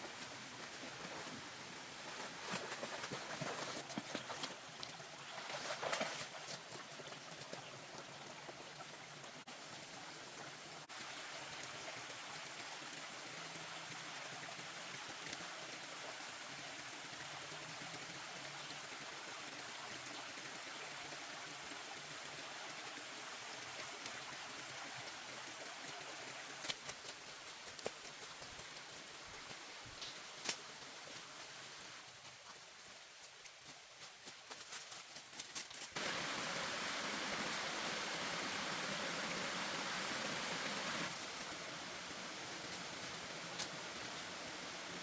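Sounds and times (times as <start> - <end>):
rushing water hiss: 8.8 - 32.6, 36.0 - 45.0.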